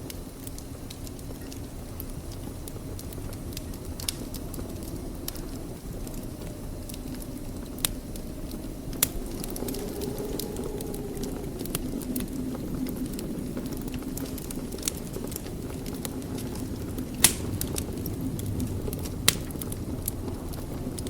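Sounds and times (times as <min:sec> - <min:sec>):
wood fire crackling: 0:00.0 - 0:21.0
sharp pops of burning wood: 0:16.9 - 0:18.2, 0:19.0 - 0:19.8.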